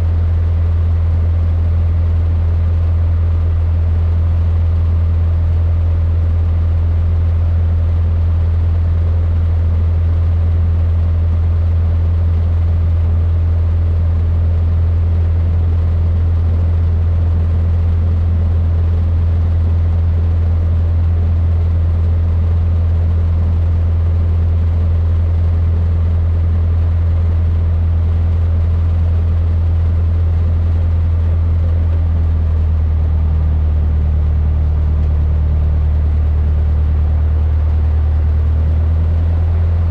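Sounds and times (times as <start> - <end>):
small plane engine droning in cockpit: 0.0 - 39.9.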